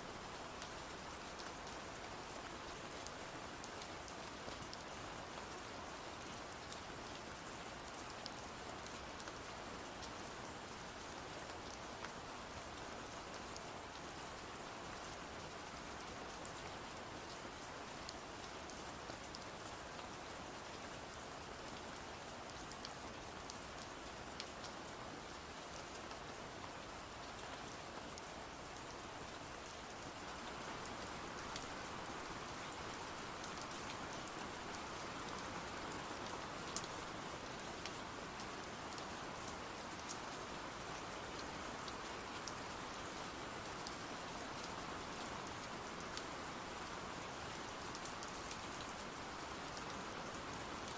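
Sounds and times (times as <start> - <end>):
rain falling: 0.0 - 50.9.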